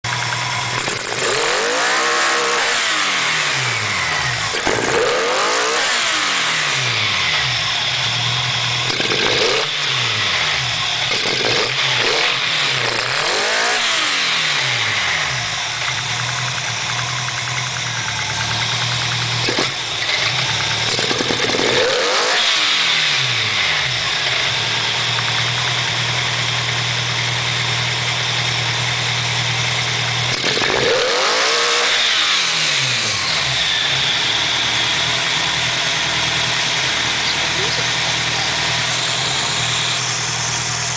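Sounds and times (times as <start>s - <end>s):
car engine revving and idling: 0.0s - 40.9s.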